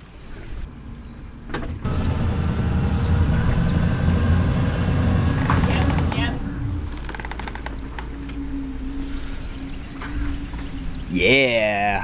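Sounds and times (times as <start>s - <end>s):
electric boat motor rumbling: 1.8s - 11.0s
faint motor whine: 1.8s - 11.1s.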